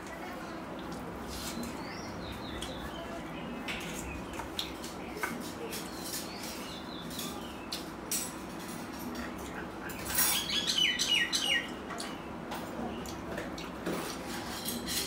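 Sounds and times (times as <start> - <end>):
bird chirping: 10.3 - 11.7.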